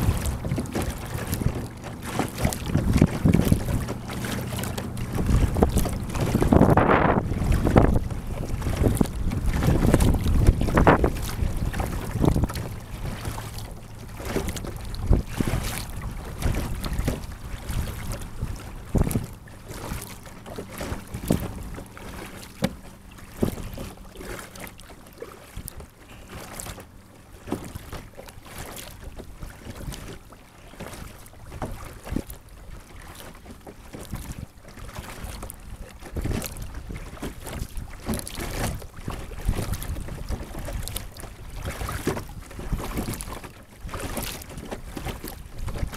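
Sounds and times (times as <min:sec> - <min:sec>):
water splashing and dripping: 0:00.0 - 0:06.8
wind on microphone: 0:00.0 - 0:22.6, 0:35.3 - 0:45.9
paddle strokes: 0:00.0 - 0:45.9.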